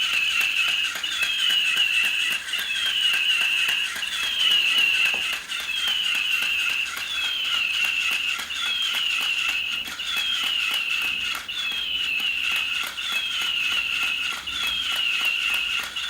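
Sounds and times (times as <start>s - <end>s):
toy bird electronic tweet: 0.0s - 16.0s
wing mechanism ticking: 0.0s - 16.0s.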